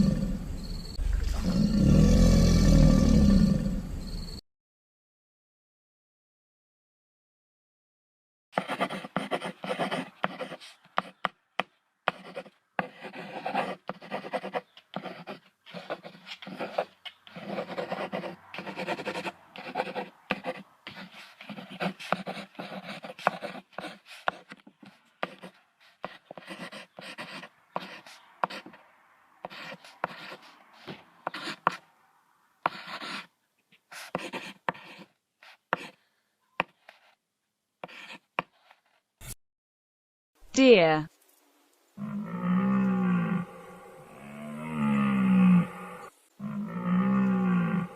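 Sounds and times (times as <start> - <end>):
crocodile vocalising: 0.0 - 4.0.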